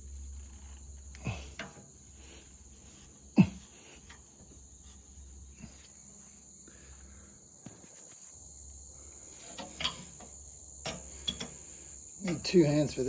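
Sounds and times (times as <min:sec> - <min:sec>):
crickets trilling: 0:00.0 - 0:13.0
faint clicks and knocks: 0:09.4 - 0:12.5.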